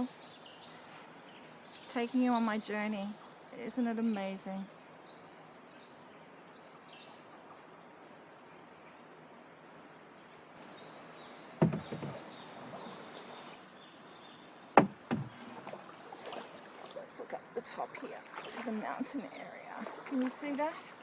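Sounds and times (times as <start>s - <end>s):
rainforest ambience with high chirps: 0.0s - 21.0s
paddle knocking against canoe hull: 10.6s - 13.6s, 14.6s - 18.8s, 19.8s - 21.0s.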